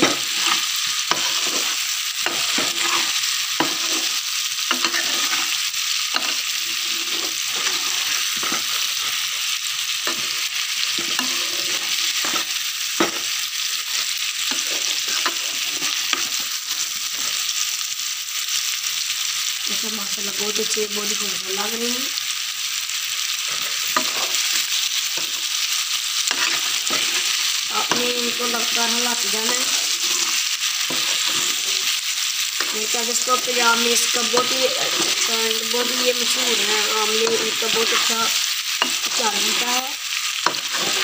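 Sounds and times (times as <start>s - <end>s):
spoon scraping and knocking pan: 0.0s - 9.4s, 10.0s - 17.4s, 23.5s - 25.5s, 26.3s - 32.0s, 32.6s - 39.8s, 40.4s - 41.0s
gooseberries sizzling in a pan: 0.0s - 41.0s.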